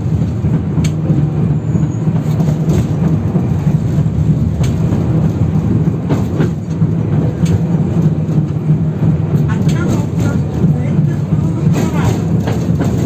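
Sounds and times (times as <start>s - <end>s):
tram wheels rumbling: 0.0s - 13.0s.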